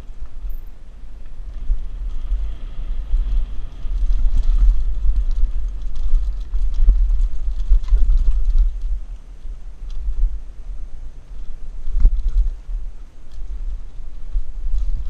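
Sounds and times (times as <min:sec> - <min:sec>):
wind buffeting microphone: 0:00.0 - 0:15.0
bike clattering over dirt trail: 0:01.5 - 0:10.3.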